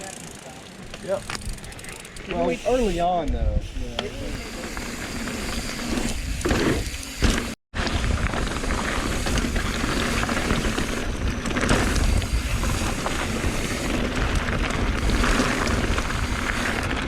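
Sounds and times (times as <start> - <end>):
bike tyre and drivetrain noise: 0.0 - 17.0
wind rumble on microphone: 7.8 - 17.0.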